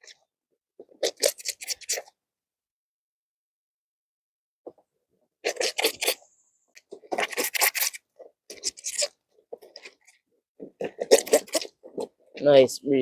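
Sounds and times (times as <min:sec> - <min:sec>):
wet fabric scrubbed by hand: 0:05.4 - 0:06.2, 0:06.8 - 0:10.2.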